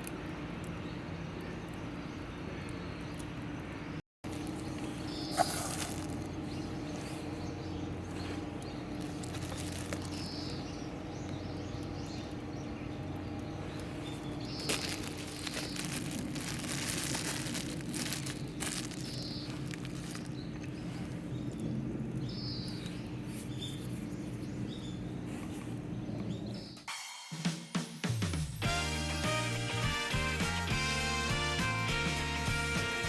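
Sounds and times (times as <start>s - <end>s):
steady low hum: 0.0s - 26.7s
bird chirping: 0.7s - 16.2s, 16.8s - 26.9s.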